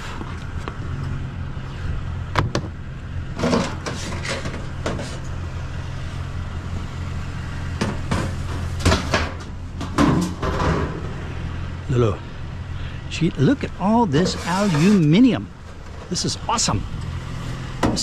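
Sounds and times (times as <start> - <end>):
truck engine running: 0.0 - 18.0
sharp knocks and clunks: 2.3 - 2.8, 7.8 - 11.2, 17.8 - 18.0.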